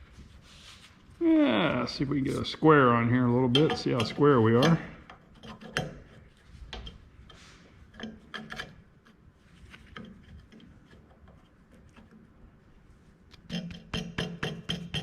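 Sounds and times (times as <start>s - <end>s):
metal scrape: 7.3s - 8.8s.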